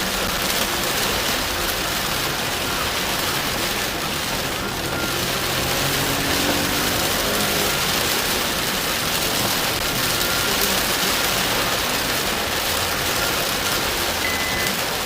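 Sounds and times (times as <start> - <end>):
heavy rain on a car: 0.0 - 15.0
short high beeps: 14.2 - 14.8.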